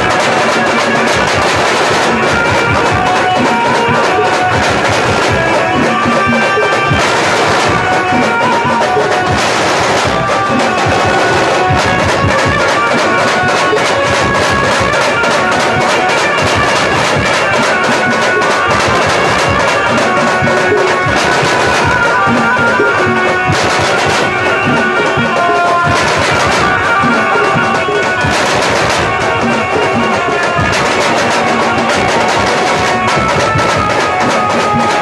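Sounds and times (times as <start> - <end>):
fast dense drumming: 0.0 - 35.0
band melody of sustained notes: 2.1 - 32.1.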